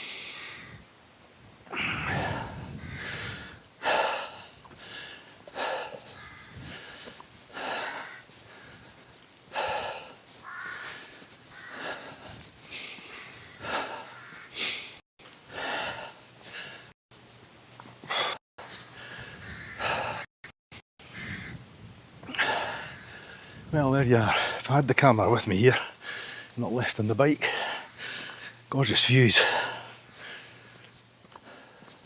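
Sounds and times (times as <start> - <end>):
person breathing hard: 0.0 - 0.7, 1.7 - 17.0, 18.0 - 20.3, 22.3 - 23.7, 25.9 - 26.6, 27.5 - 28.7, 29.4 - 32.0.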